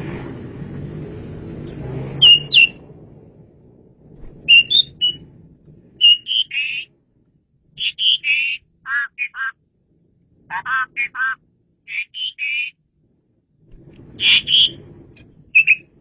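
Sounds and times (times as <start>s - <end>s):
starling whistling and chattering: 2.2s - 2.8s, 4.4s - 5.2s, 6.0s - 6.9s, 7.8s - 9.5s, 10.5s - 12.7s, 14.2s - 14.8s, 15.6s - 15.9s
low rumble: 2.8s - 6.1s, 12.8s - 16.0s.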